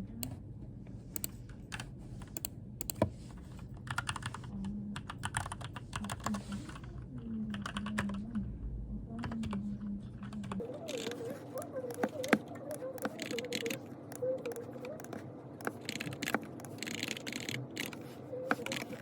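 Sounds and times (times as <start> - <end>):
keyboard typing: 1.2 - 3.1, 3.8 - 8.2, 10.2 - 19.0.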